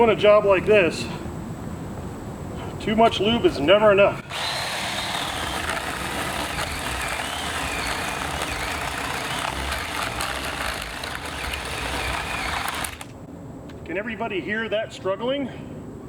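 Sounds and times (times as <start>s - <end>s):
battery chainsaw cutting wood: 4.2s - 13.2s.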